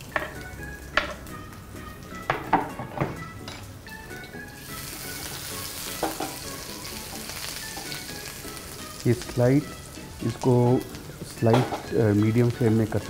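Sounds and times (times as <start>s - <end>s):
food sizzling in hot oil: 0.0s - 13.0s
spatula knocking on pan: 0.1s - 1.2s, 2.2s - 3.2s, 6.0s - 6.4s.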